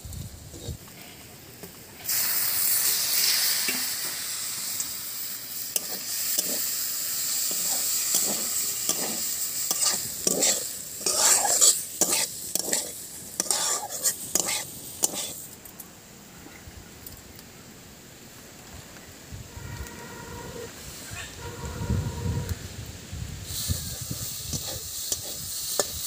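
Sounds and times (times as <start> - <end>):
meat sizzling in hot oil: 1.6 - 15.5, 23.4 - 26.0
metal spatula scraping a wok: 5.7 - 6.8, 7.4 - 15.4, 23.5 - 26.0.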